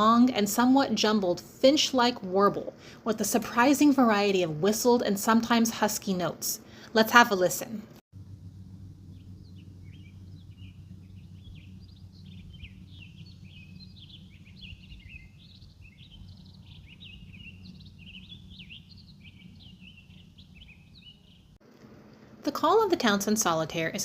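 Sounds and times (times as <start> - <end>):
low background rumble: 7.6 - 22.4
bird warbling song: 8.5 - 21.6.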